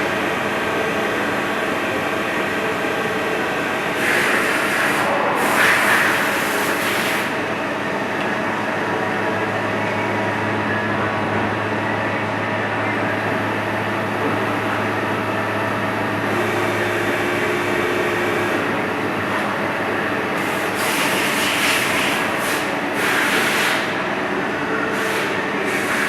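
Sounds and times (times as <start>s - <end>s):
lathe mechanical hum and whine: 0.0s - 26.0s.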